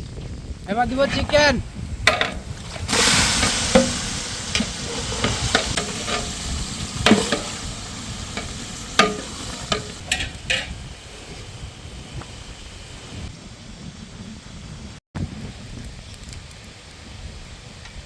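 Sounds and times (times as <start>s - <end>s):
chicken sizzling in hot oil: 2.4s - 13.3s
spoon scraping a pot: 4.6s - 6.4s.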